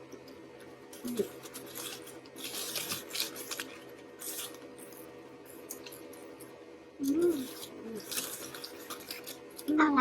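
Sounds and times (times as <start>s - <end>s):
paper packaging rustling: 1.0s - 5.0s, 7.2s - 9.7s.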